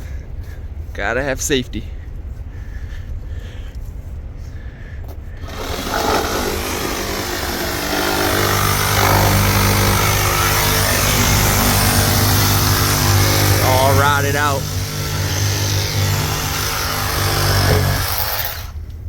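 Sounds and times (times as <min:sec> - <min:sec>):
power saw cutting wood: 0:05.4 - 0:18.8.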